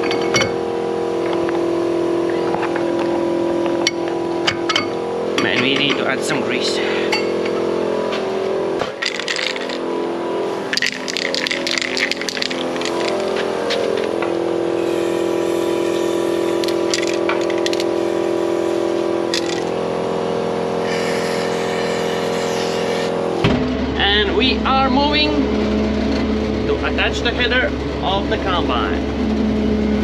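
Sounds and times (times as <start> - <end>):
diesel engine running: 0.0 - 30.0
steady whine: 0.0 - 30.0
metallic clicks and rattles: 8.8 - 9.8, 10.7 - 14.2, 16.6 - 17.9.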